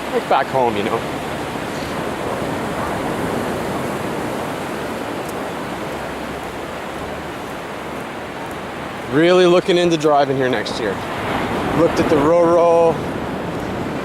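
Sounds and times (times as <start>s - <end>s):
ocean surf washing on beach: 0.0s - 14.0s.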